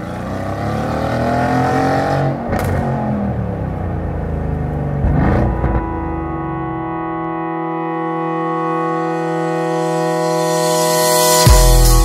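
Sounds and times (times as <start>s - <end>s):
car engine revving: 0.0s - 7.5s
exhaust crackle: 2.4s - 7.4s.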